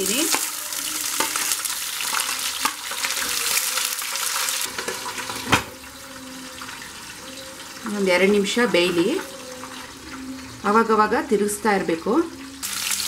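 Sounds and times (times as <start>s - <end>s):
capsicum sizzling in hot oil: 0.0s - 11.2s, 12.1s - 13.0s.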